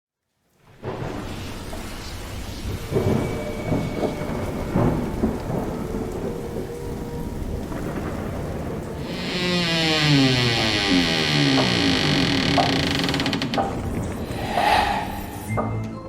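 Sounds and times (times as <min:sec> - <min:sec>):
steady rain: 0:00.2 - 0:14.5
rumbling thunder: 0:02.7 - 0:09.0.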